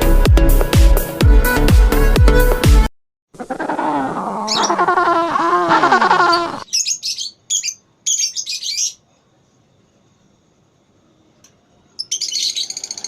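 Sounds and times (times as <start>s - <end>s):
lovebirds chattering: 4.3s - 9.0s.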